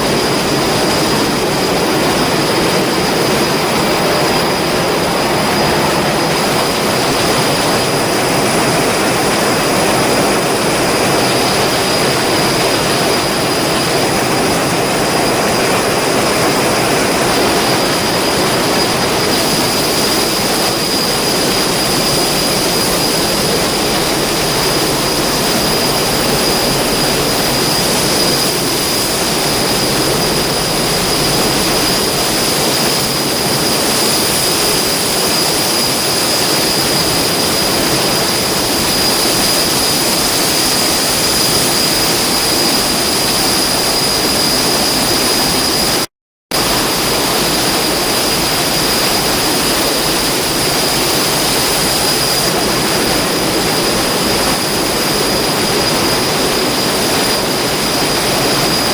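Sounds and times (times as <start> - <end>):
heavy machinery whining and rumbling: 14.0 - 33.6.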